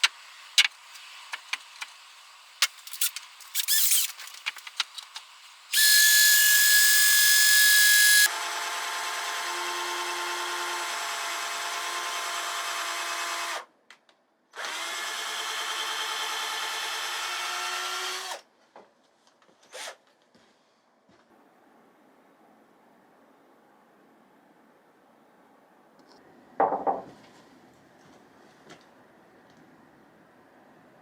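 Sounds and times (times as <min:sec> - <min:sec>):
electric power tool whine: 0:05.1 - 0:13.7.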